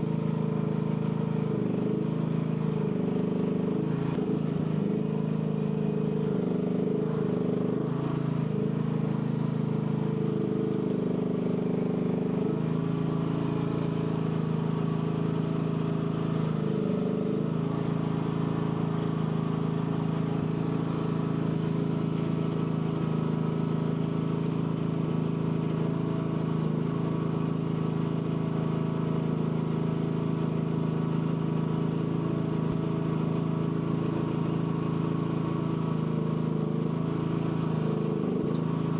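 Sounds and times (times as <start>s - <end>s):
excavator engine running: 0.0s - 38.9s.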